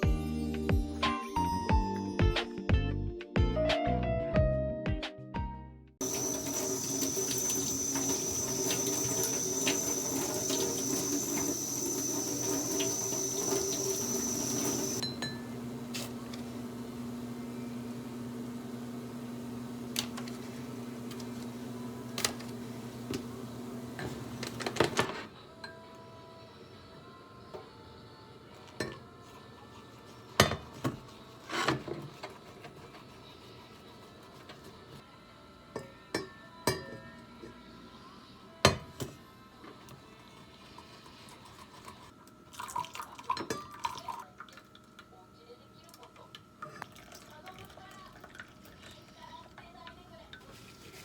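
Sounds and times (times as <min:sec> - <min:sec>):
dishes and utensils clinking: 0:06.0 - 0:16.5, 0:28.6 - 0:29.4, 0:30.2 - 0:31.0, 0:35.8 - 0:37.6, 0:43.3 - 0:44.1
running water: 0:06.0 - 0:25.0.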